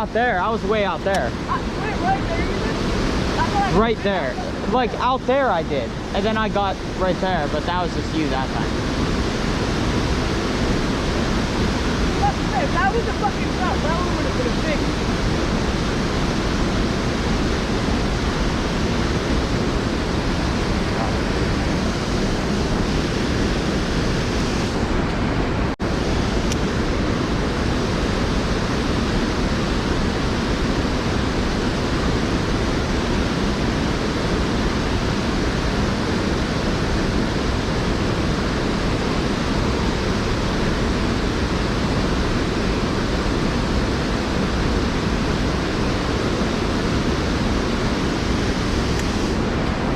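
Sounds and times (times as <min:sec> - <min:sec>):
creek water over waterfall: 0:00.0 - 0:49.9.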